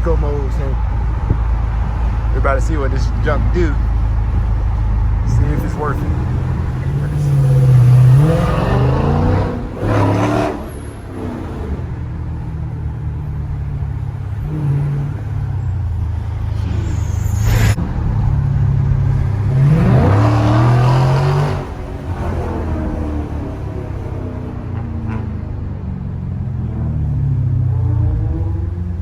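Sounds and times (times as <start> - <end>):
car engine accelerating: 0.0 - 29.0
exhaust note through gear changes: 0.0 - 29.0.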